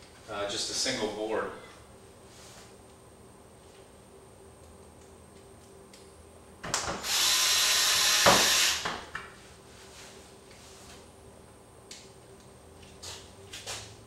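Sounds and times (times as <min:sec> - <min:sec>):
power drill driving screw: 0:07.0 - 0:08.9.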